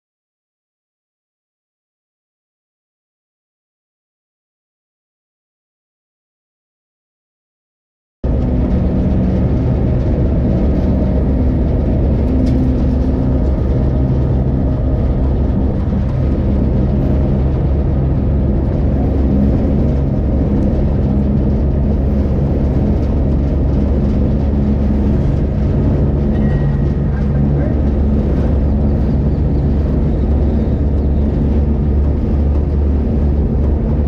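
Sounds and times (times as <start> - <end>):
train engine drone: 8.2 - 34.0
train wheels rumbling on rails: 8.2 - 34.0.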